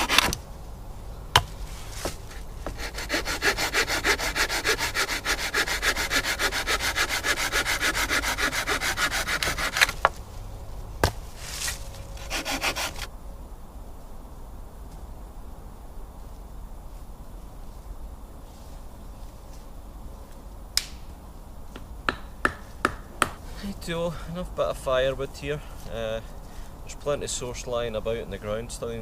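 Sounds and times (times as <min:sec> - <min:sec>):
hand saw cutting wood: 0:00.0 - 0:00.4, 0:02.7 - 0:10.1, 0:11.5 - 0:13.1.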